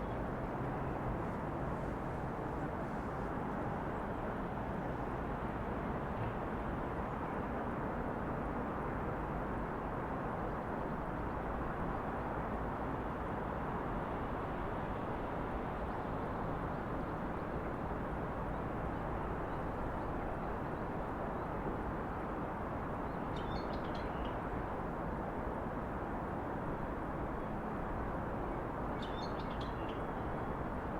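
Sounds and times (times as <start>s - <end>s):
distant city traffic hum: 0.0s - 10.2s.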